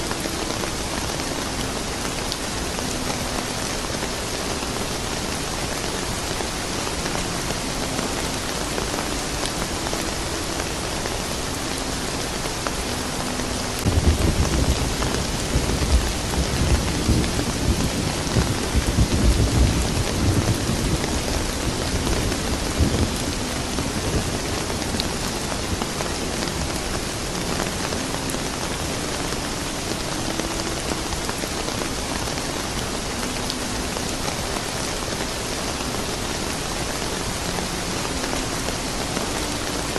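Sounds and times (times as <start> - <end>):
rain falling: 0.0 - 39.9
thunder rumbling: 13.8 - 25.9.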